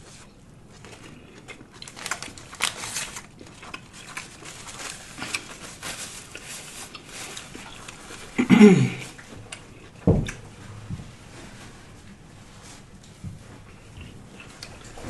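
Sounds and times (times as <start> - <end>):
person chewing a sandwich: 0.6 - 8.4, 9.0 - 10.5, 12.9 - 15.0.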